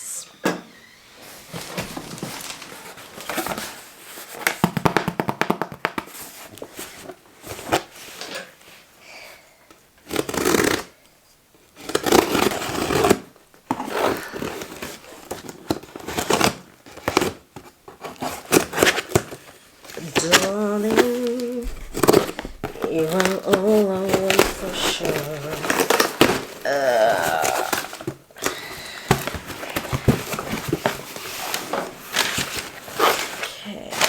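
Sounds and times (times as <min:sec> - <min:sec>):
cardboard box rustling and tearing: 0:01.5 - 0:04.5, 0:10.0 - 0:11.0, 0:11.8 - 0:34.0
packaging crackling: 0:18.4 - 0:34.0.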